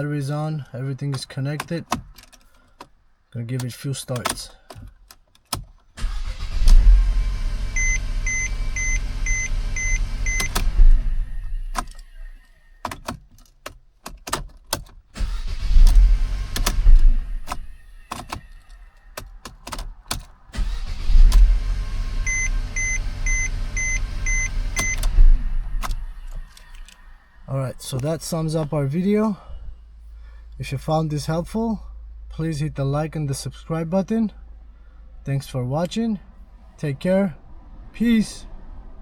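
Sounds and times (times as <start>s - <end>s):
car engine starting and running: 0.0s - 39.0s
dashboard chime beeping: 7.8s - 10.6s, 22.2s - 25.1s.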